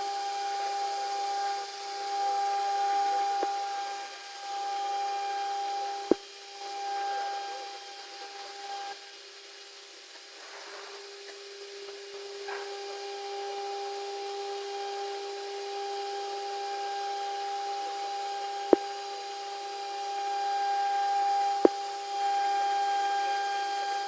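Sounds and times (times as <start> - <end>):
router spindle whining: 0.0 - 24.0.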